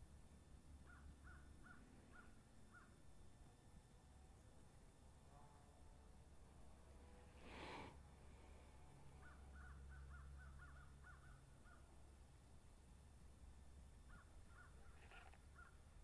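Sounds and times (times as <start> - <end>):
faint bird calls: 0.8 - 3.1, 7.3 - 12.0, 14.0 - 16.0.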